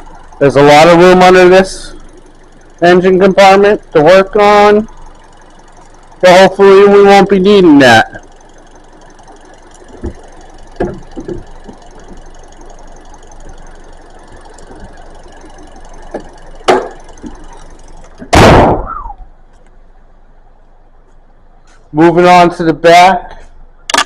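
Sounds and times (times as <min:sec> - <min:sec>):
car engine idling: 0:00.0 - 0:24.0
car hood slammed shut: 0:18.3 - 0:19.0.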